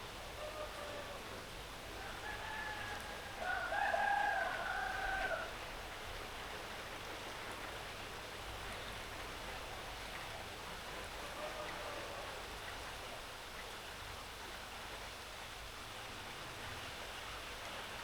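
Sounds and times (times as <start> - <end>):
rooster crowing: 2.0 - 5.5.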